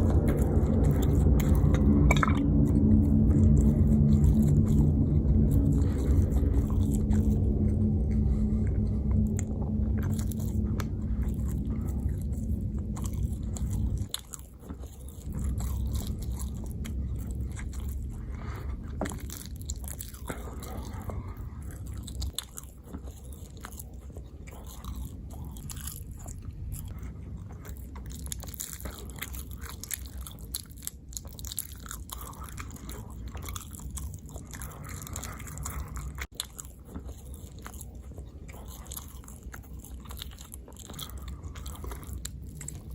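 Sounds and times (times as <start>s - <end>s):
chewing and biting food: 0.0s - 42.9s
low hum: 0.0s - 42.9s.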